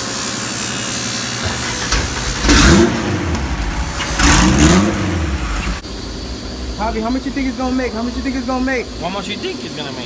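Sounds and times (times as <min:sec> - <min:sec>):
car engine revving: 0:01.4 - 0:06.8.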